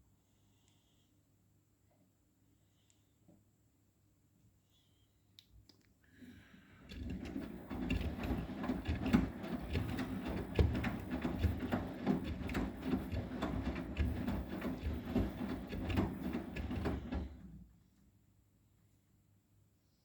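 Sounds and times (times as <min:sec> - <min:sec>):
washing machine drum rumbling: 0:06.9 - 0:17.6
thuds and knocks in drum: 0:07.1 - 0:17.4.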